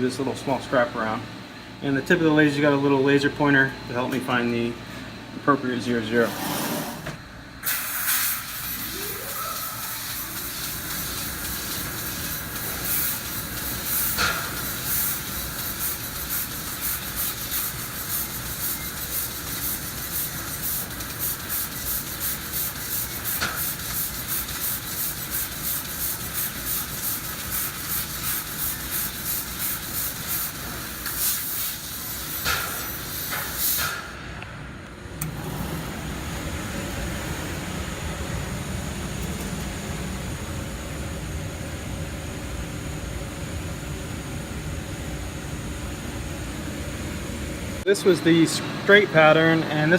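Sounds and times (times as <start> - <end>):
laser cutter gas hiss: 7.6 - 34.3.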